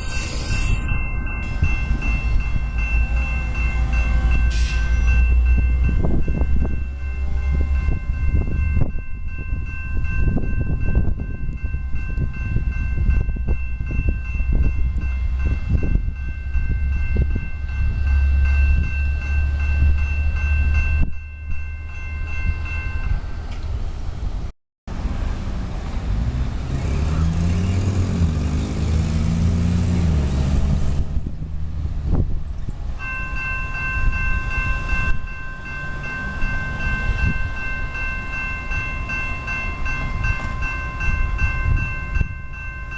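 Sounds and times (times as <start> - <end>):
steady high-pitched tone: 0.0 - 11.3
train engine note sliding: 0.0 - 24.2
train rumbling past: 0.0 - 42.9.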